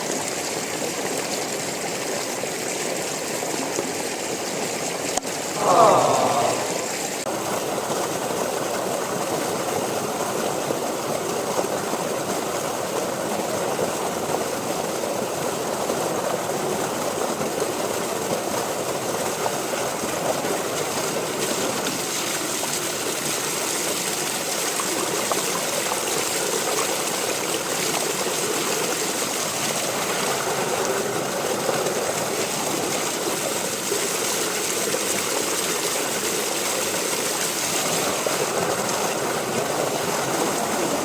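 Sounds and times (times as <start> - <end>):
water running: 5.5 - 7.2.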